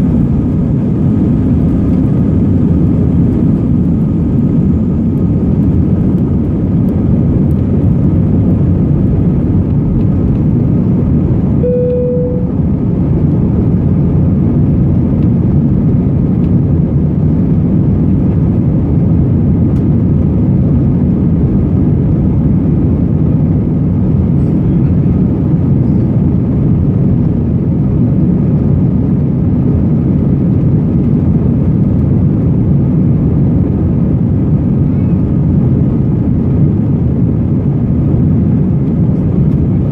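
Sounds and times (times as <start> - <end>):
aircraft cabin engine rumble: 0.0 - 39.9
short cabin chime tone: 11.6 - 12.7.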